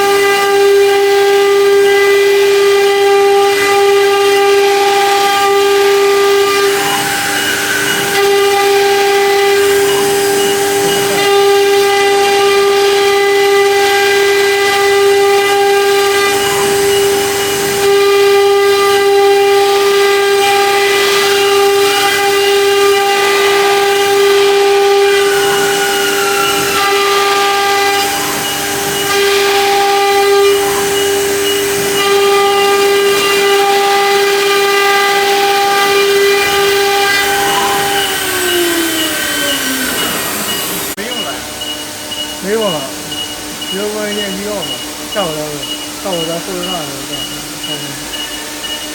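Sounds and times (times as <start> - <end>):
router spindles high whine: 0.0 - 48.9.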